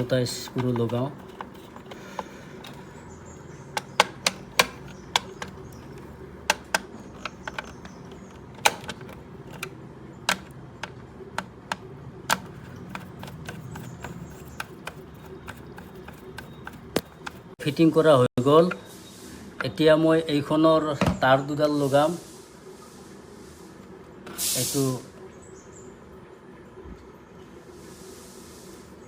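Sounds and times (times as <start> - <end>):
screwdriver clicking on screws: 0.0 - 9.7, 10.3 - 17.5.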